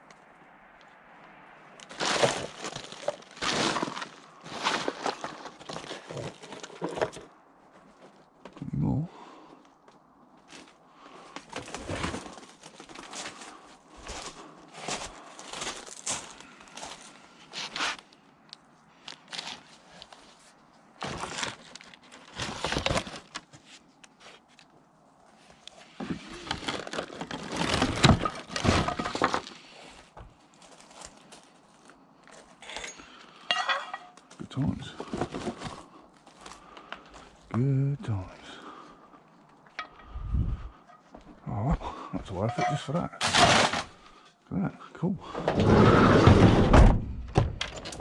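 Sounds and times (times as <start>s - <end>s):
rummaging through rubbish bags: 1.8s - 8.3s, 11.4s - 18.0s, 19.0s - 24.5s, 25.9s - 31.9s, 33.5s - 37.3s, 42.3s - 44.1s.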